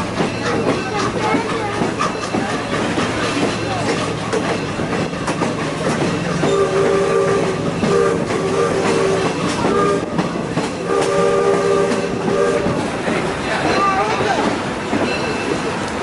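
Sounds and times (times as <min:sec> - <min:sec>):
train rumble and clatter: 0:00.0 - 0:16.0
steam locomotive whistle blasts: 0:06.4 - 0:12.8.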